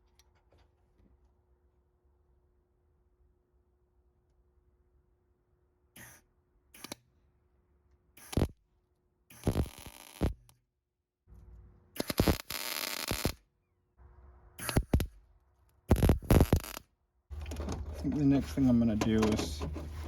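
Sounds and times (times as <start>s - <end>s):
welding arc crackle: 8.2s - 8.5s, 9.3s - 10.5s, 12.0s - 13.4s, 14.6s - 15.1s, 15.9s - 16.8s.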